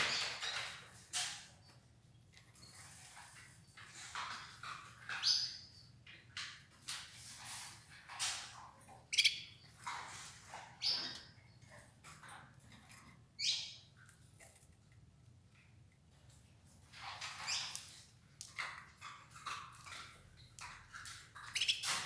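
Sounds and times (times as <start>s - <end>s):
canaries chirping: 0.0s - 0.8s, 2.5s - 6.5s, 9.1s - 12.8s, 13.4s - 14.1s, 17.0s - 18.0s, 19.3s - 22.0s.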